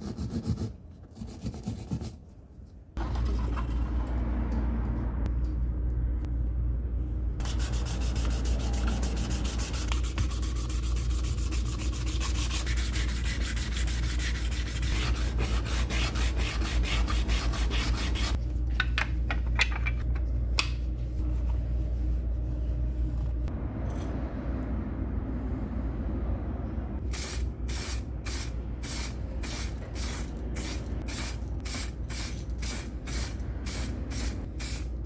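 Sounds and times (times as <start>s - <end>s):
steady low hum: 3.2s - 35.0s
sandpaper rubbing: 7.4s - 18.4s.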